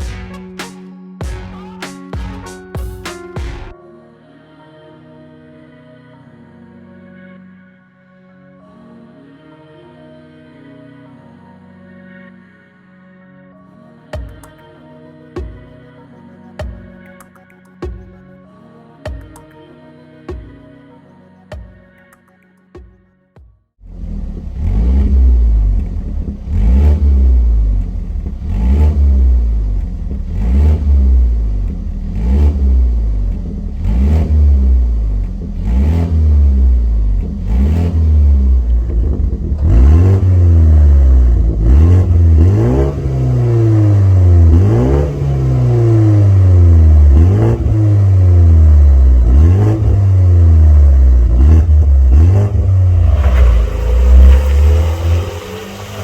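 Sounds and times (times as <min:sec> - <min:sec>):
car engine revving: 0:23.8 - 0:56.0.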